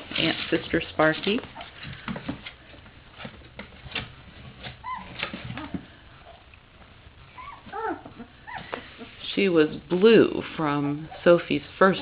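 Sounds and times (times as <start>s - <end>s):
puppies whimpering: 4.7s - 6.5s, 7.2s - 9.2s.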